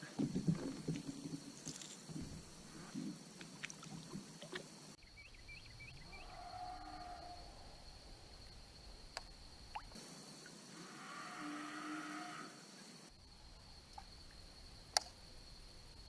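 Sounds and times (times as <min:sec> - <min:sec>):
faint drawn-out call: 0:04.2 - 0:07.8, 0:10.7 - 0:12.9.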